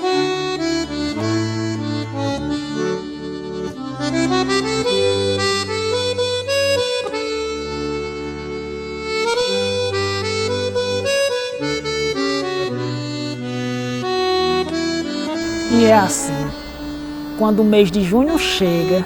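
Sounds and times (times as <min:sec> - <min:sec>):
accordion music: 0:15.4 - 0:19.0.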